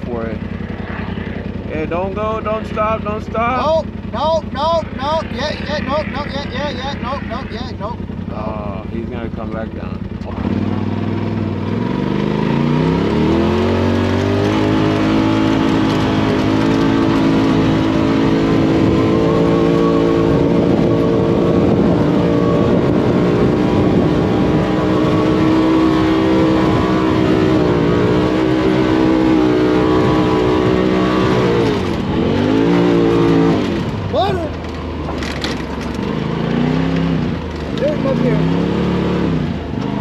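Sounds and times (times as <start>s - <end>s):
off-road vehicle engine revving: 0.0s - 40.0s.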